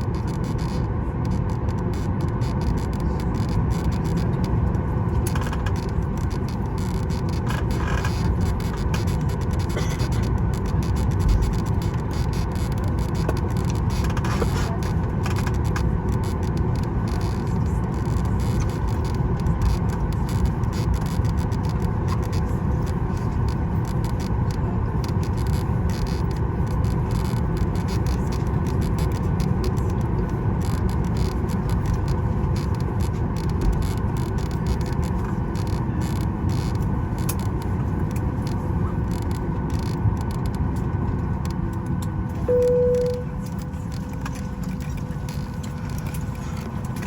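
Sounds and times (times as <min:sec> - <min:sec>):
faint hum: 0:00.0 - 0:47.0
aircraft engines idling: 0:36.8 - 0:39.0, 0:40.8 - 0:47.0.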